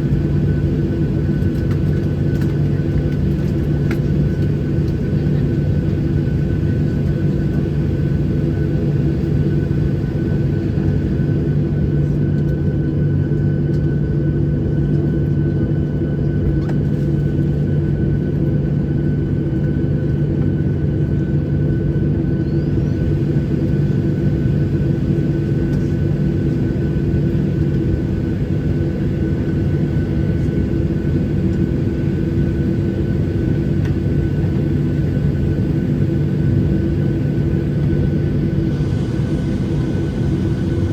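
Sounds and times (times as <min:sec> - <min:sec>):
jet engine cabin rumble: 0:00.0 - 0:40.9
thin steady engine whine: 0:00.0 - 0:40.9.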